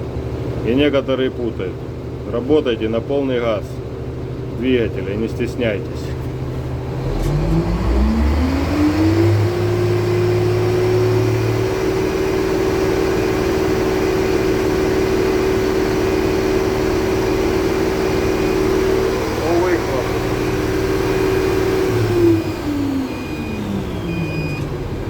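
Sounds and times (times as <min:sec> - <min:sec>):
tractor diesel engine revving: 0:00.0 - 0:25.0.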